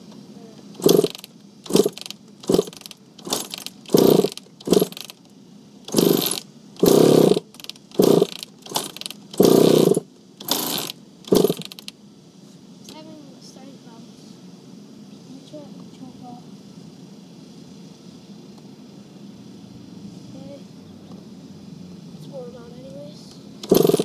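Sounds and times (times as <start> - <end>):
motorcycle engine turning over: 0.8 - 5.2, 5.9 - 11.9, 23.6 - 24.0.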